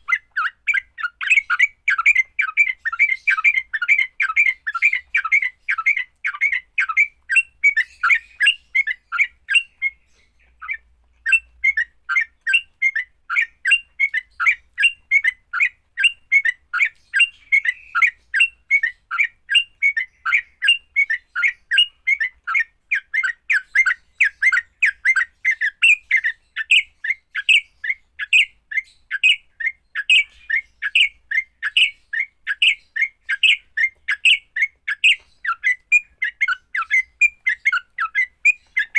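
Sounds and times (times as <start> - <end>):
bird harsh chattering call: 27.4 - 38.9.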